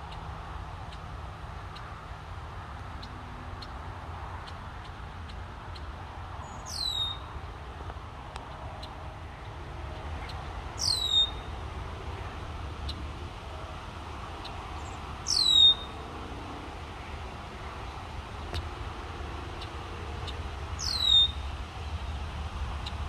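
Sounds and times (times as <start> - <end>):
bird whistling descending call: 10.8 - 11.5, 15.3 - 16.0, 20.8 - 21.4.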